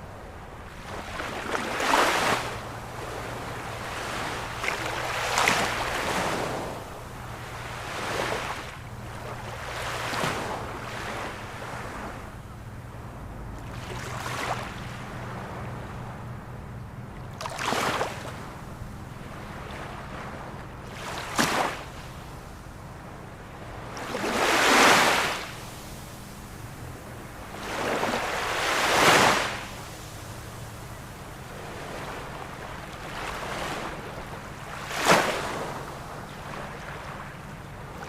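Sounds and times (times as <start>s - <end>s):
ocean waves breaking on shore: 0.0s - 38.0s.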